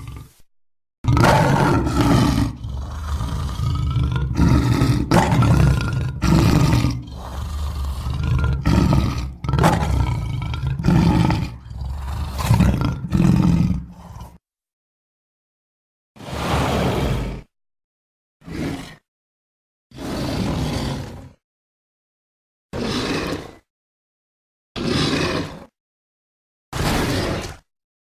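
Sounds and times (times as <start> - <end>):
creature roaring: 0.0 - 14.4, 16.2 - 17.5, 18.4 - 19.1, 19.9 - 21.4, 22.8 - 23.7, 24.8 - 25.8, 26.8 - 27.6
low creature growling: 0.0 - 14.4, 18.4 - 19.1, 20.0 - 21.4, 22.8 - 23.7, 24.8 - 25.8.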